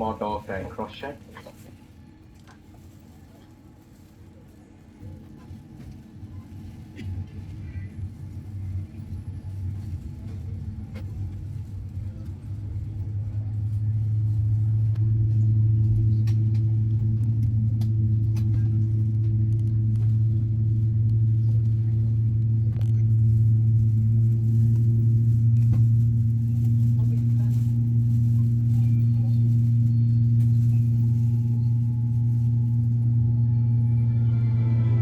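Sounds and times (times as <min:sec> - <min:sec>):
jet engine hum: 0:28.5 - 0:35.0.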